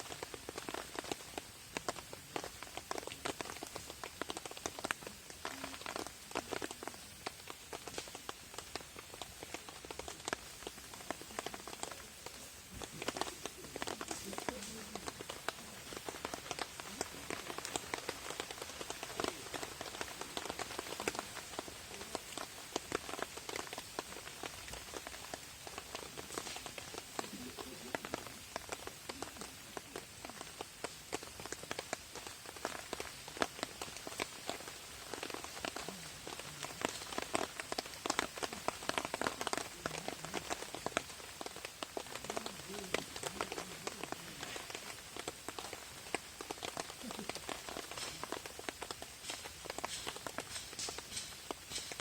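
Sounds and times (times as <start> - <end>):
rain drops tapping on tarp: 0.0 - 52.0.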